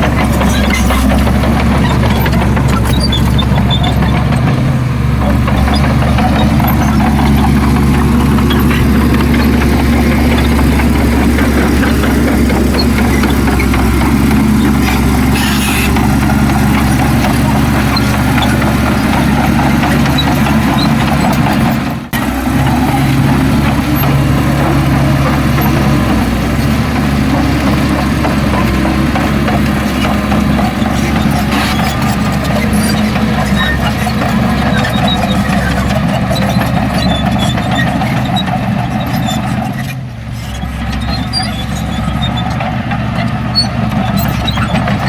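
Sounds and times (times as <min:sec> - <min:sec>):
heavy diesel machinery running: 0:00.0 - 0:45.0.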